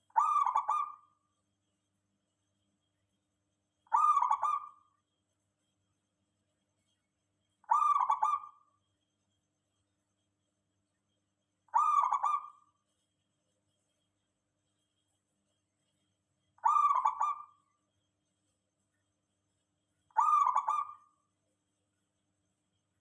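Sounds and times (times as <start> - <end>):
dove cooing: 0.2 - 1.0, 3.9 - 4.8, 7.7 - 8.5, 11.8 - 12.6, 16.6 - 17.5, 20.2 - 21.0.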